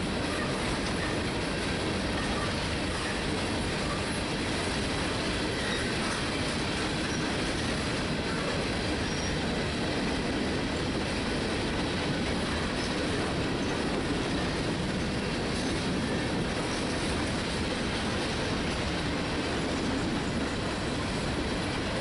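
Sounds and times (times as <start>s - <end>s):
freight train wheels on rails: 0.0s - 22.0s
faint high wheel squeal: 5.3s - 9.6s.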